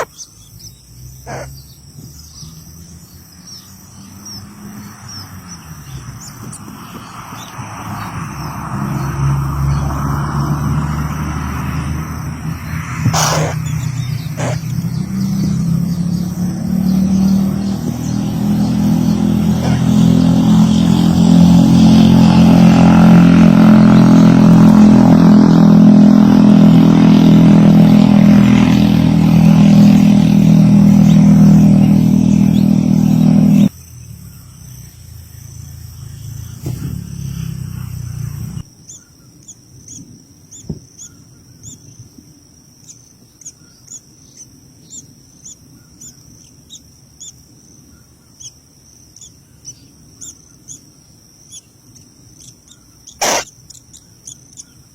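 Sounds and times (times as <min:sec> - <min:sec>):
motor engine running: 0:12.1 - 0:38.6.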